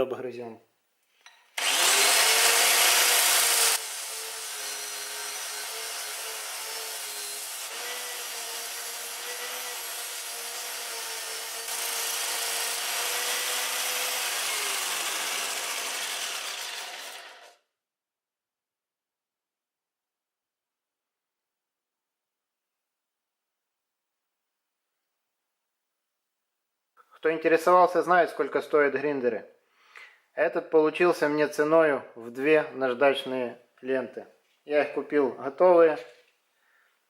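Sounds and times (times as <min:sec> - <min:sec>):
belt grinder grinding metal: 0:01.6 - 0:17.6.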